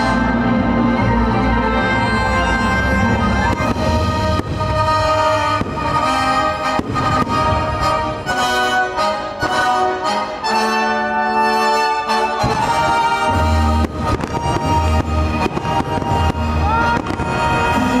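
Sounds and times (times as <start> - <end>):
orchestral music with brass: 0.0 - 18.0
fireworks bangs: 3.2 - 8.6, 12.4 - 18.0.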